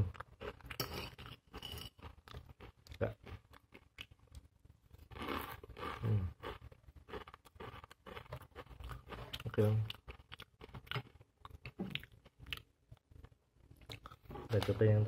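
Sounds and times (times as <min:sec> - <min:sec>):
crunchy snack chewing: 0:05.1 - 0:12.7.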